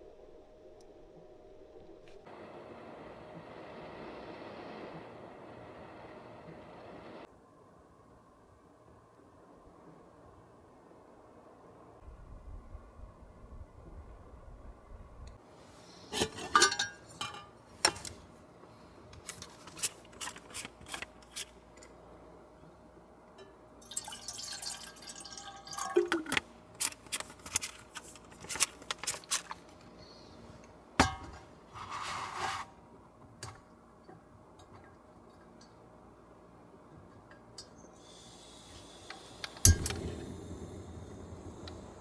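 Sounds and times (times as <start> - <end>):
glassware and dishes clinking: 16.2 - 18.0, 23.4 - 26.4
liquid being poured: 23.8 - 26.4.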